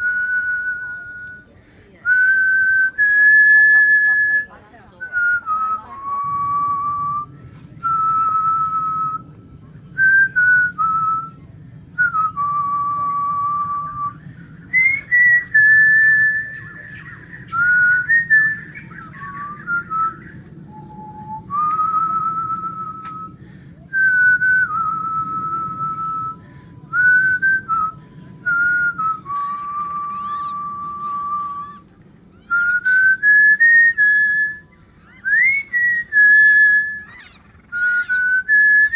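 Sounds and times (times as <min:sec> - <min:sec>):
person whistling a tune: 0:00.0 - 0:01.4, 0:19.2 - 0:23.3, 0:23.9 - 0:31.8, 0:32.4 - 0:34.6, 0:35.2 - 0:37.1
low background hum: 0:00.0 - 0:38.9.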